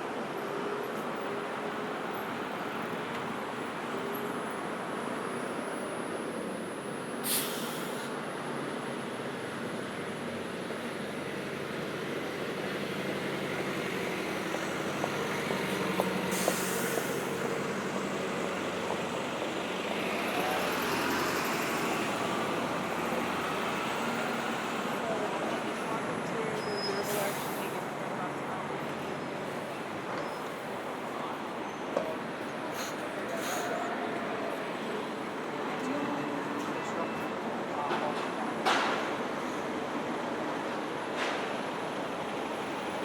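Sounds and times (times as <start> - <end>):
road noise: 0.0 - 43.0
vehicles idling and moving past: 0.1 - 43.0
short hisses: 7.2 - 8.1
vehicle whine pulling away: 11.5 - 25.8.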